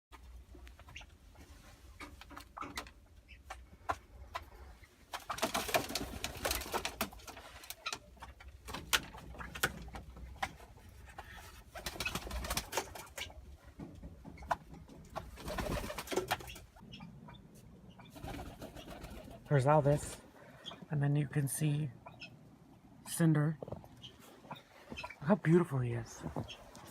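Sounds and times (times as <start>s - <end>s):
dove cooing: 15.4s - 19.5s.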